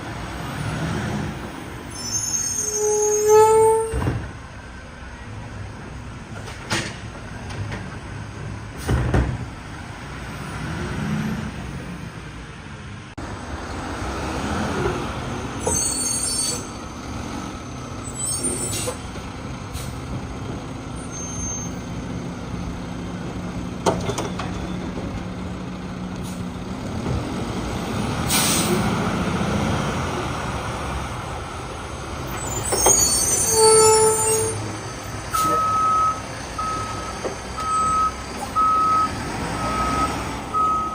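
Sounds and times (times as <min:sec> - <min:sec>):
garbage truck diesel engine: 0:00.0 - 0:40.9
air brakes hissing: 0:18.1 - 0:19.0, 0:19.7 - 0:20.0, 0:26.2 - 0:26.6, 0:28.2 - 0:28.9
backup alarm beeping: 0:35.6 - 0:40.9.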